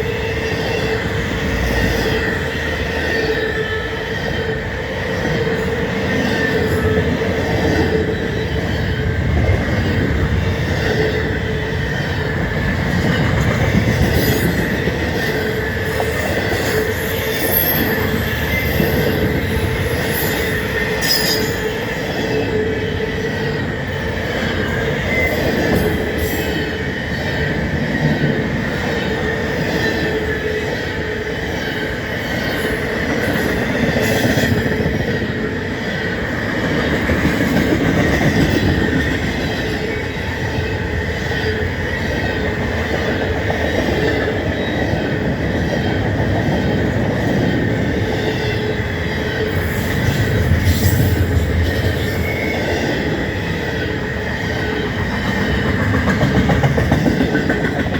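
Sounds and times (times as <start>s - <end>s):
train wheels rumbling on rail: 0.0s - 57.9s
high wheel squeal: 13.8s - 22.1s.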